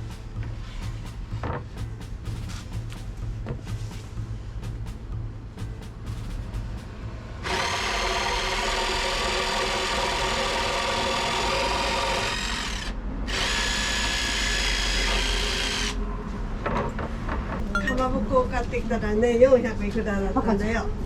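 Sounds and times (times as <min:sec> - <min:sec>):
cordless power tool motor whining: 0:07.5 - 0:16.0.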